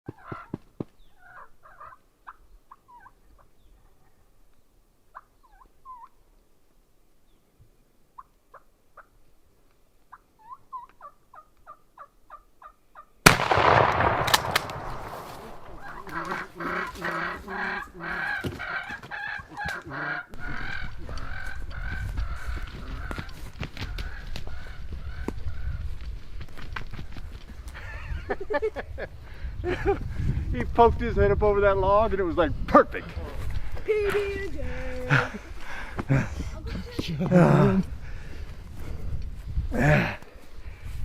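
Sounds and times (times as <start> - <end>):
turkeys yelping and clucking: 0.1 - 3.5, 5.1 - 6.2, 10.1 - 13.1, 15.4 - 25.8
shotgun shot: 13.3 - 16.4
rustling and flapping: 21.3 - 28.4.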